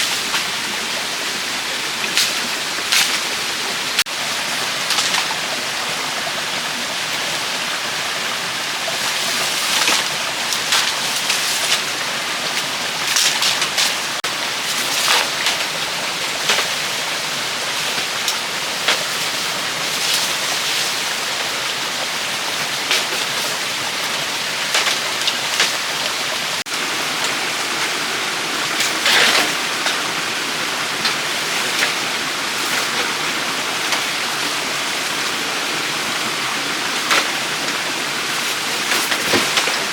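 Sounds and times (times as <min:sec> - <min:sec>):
rushing water: 0:00.0 - 0:39.9
scraping or splashing sounds: 0:00.0 - 0:39.9.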